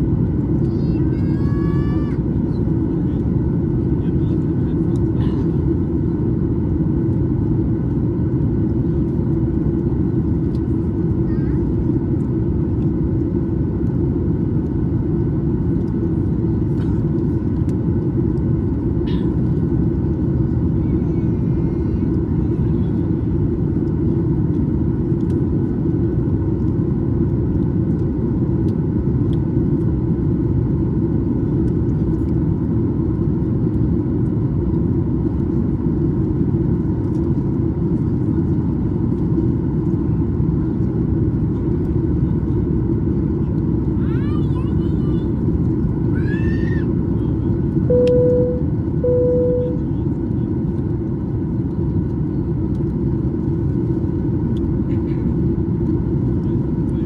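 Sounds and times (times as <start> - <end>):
airliner cabin noise: 0.0 - 57.0.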